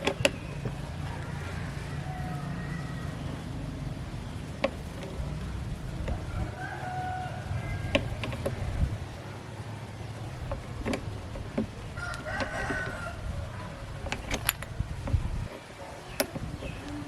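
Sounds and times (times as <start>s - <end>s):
steady low rumble: 0.0s - 15.5s
rooster crowing: 0.7s - 3.7s, 6.1s - 8.5s, 11.8s - 14.6s.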